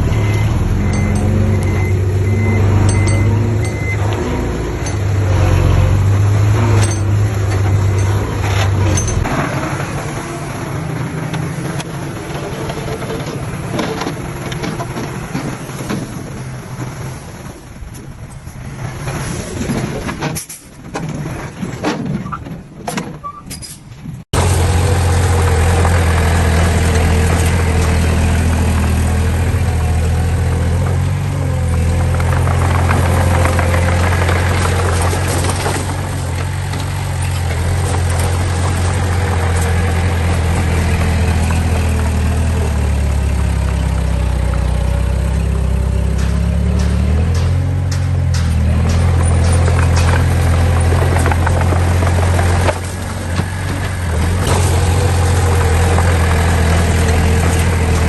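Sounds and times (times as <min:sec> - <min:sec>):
heavy diesel machinery: 0:00.0 - 0:58.0
knocks and clanks: 0:02.8 - 0:10.2, 0:19.0 - 0:58.0.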